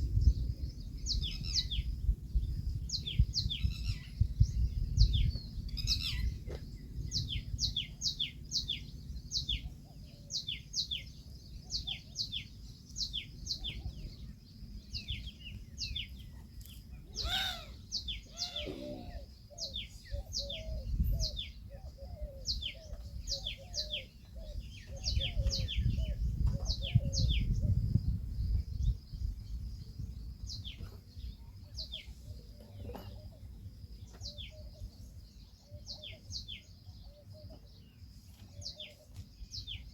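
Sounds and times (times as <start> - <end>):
low rumble: 0.0 - 10.0
birds chirping: 0.1 - 39.9.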